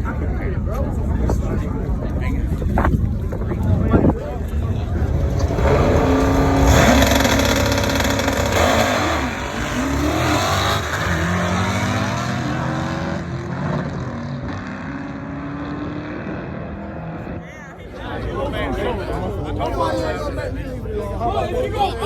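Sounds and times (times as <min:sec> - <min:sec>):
engine revving: 0:05.0 - 0:17.4.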